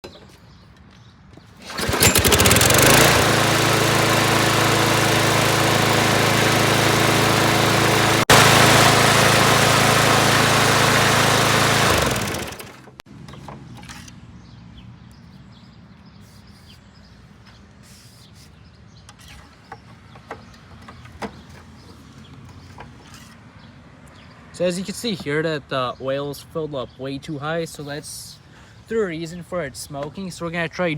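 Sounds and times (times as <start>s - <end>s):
lawn mower engine running: 1.6s - 13.0s.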